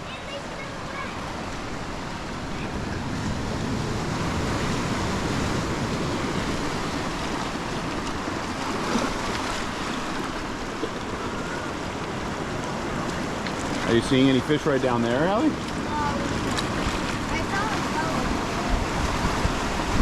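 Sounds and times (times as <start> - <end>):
ocean surf washing in: 0.0 - 20.0
wind on microphone: 1.7 - 10.5, 15.6 - 20.0.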